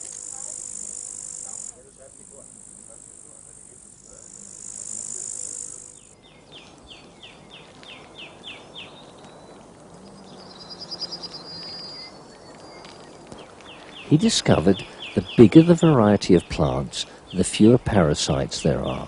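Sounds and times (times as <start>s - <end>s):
high insect buzz: 0.0s - 7.0s.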